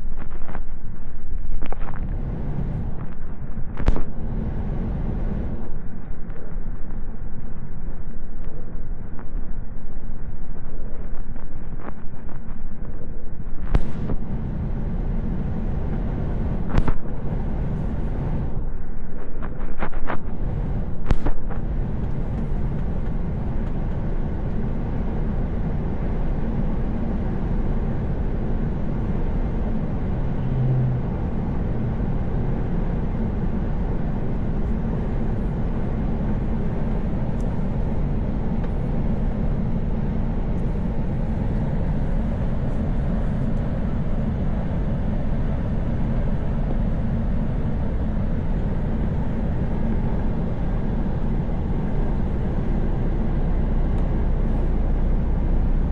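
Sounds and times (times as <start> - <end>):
truck diesel engine: 2.0 - 5.7, 20.3 - 55.9.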